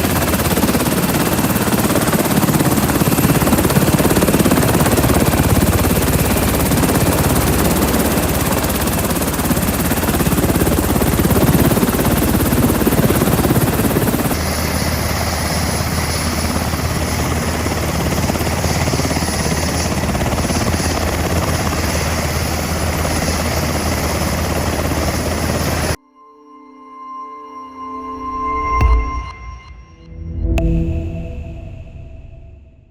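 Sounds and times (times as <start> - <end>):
helicopter rotor and turbine: 0.0 - 26.0.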